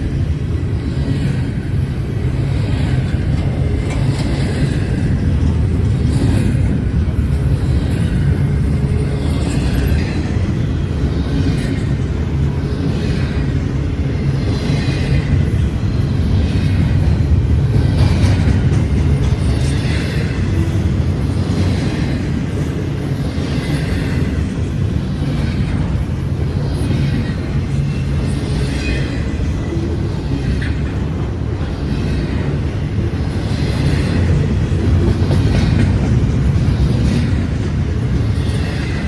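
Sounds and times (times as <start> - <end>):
freight train rumbling past: 0.0 - 39.0
train wheels clattering: 0.0 - 39.0.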